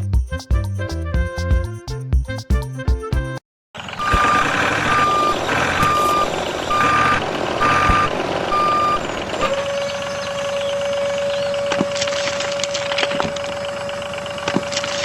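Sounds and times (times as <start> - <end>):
steady mechanical noise: 3.8 - 15.0
reversing beeper: 3.9 - 15.0.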